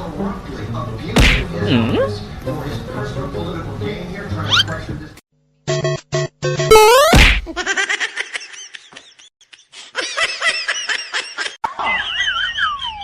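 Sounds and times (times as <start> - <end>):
short electronic beep: 6.7 - 7.2
laughter: 7.6 - 13.0.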